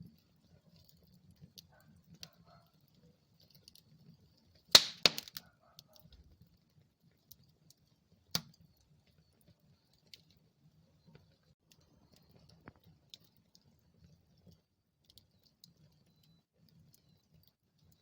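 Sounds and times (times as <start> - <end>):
wood fire crackling: 0.0 - 5.6, 6.7 - 18.0
sharp loud pops of fire: 4.8 - 5.4.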